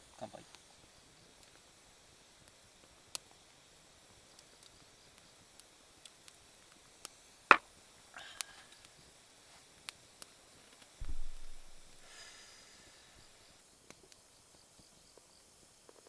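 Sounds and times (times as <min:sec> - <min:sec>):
dull low thump: 0:11.0 - 0:12.1.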